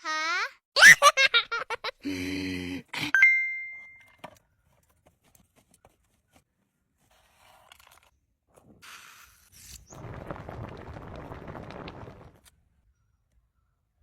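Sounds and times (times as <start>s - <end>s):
bell-like chime ding: 3.2s - 4.1s.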